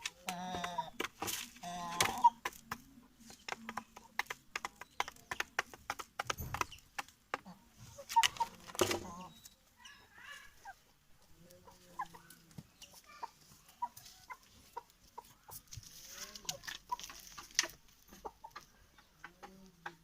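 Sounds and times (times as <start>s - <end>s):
chickens clucking: 0.0s - 20.0s
sharp clicks and taps: 2.0s - 7.5s.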